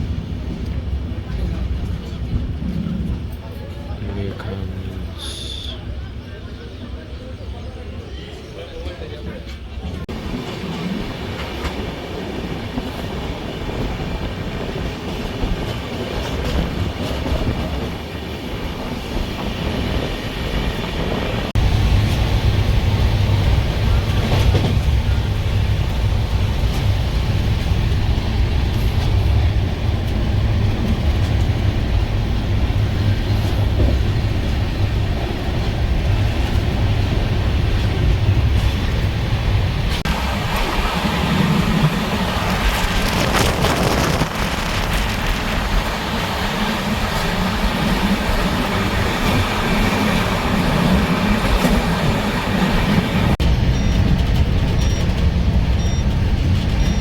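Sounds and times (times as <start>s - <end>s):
train coach running on rails: 0.0s - 57.0s
heavy low rumble: 20.4s - 57.0s.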